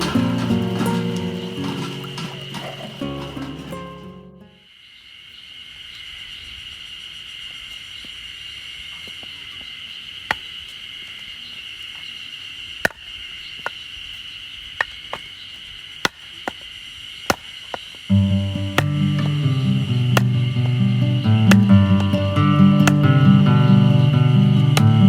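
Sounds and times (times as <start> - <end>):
insects chirring: 0.0 - 25.0
sharp knocks: 18.2 - 24.0.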